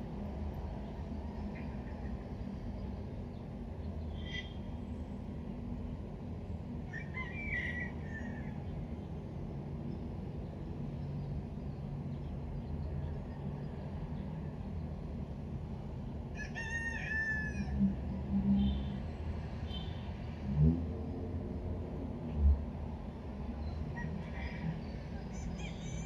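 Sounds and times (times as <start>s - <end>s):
rooster crowing: 16.4s - 17.8s.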